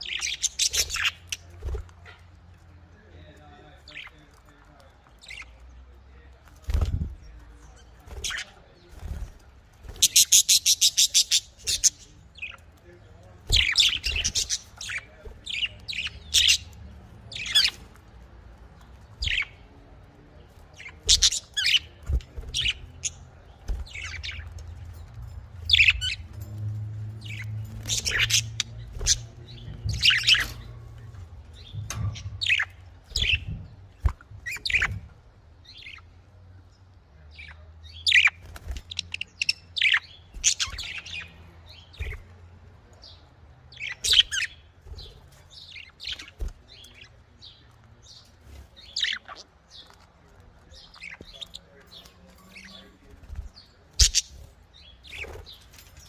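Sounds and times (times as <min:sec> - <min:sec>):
budgerigars chirping: 0:00.0 - 0:02.2, 0:10.0 - 0:12.7, 0:13.5 - 0:17.8, 0:19.2 - 0:19.7, 0:20.8 - 0:23.2, 0:25.7 - 0:26.3, 0:27.2 - 0:30.8, 0:31.6 - 0:35.1, 0:37.4 - 0:42.2, 0:43.7 - 0:44.6, 0:45.7 - 0:50.0, 0:54.0 - 0:55.6.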